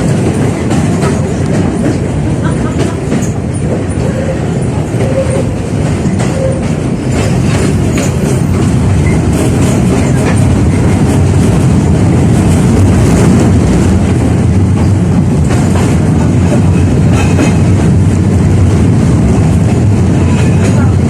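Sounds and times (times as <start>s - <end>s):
wheels clicking over rail joints: 0.0s - 13.3s
tram rumbling along track: 0.0s - 21.0s.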